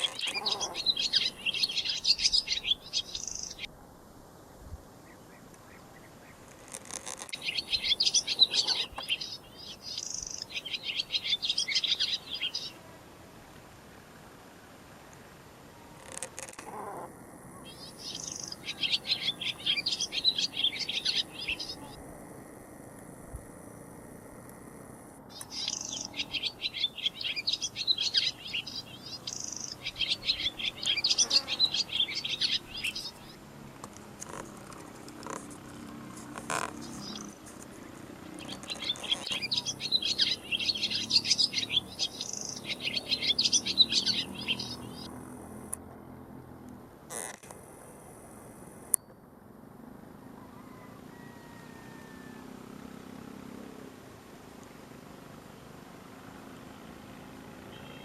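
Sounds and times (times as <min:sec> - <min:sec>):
songbird chirping and trilling: 0:00.0 - 0:03.7, 0:05.0 - 0:13.0, 0:14.9 - 0:33.4, 0:35.0 - 0:47.3, 0:54.6 - 0:58.0.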